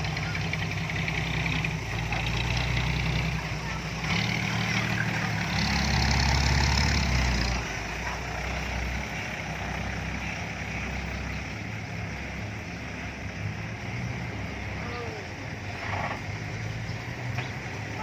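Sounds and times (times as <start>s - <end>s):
dump truck diesel engine idling: 0.0s - 18.0s.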